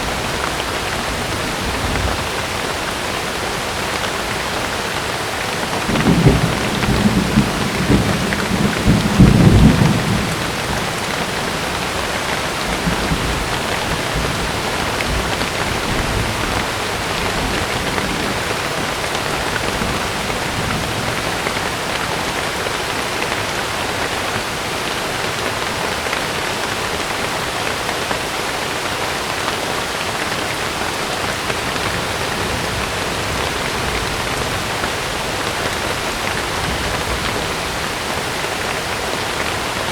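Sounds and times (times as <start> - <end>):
thunder rumbling: 0.0 - 22.4
heavy rain on a tent: 0.0 - 39.9.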